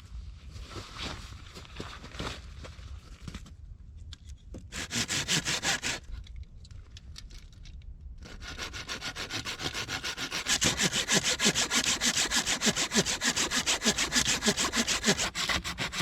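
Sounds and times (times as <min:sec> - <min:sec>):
hand saw cutting wood: 0:04.7 - 0:06.1, 0:08.2 - 0:16.0.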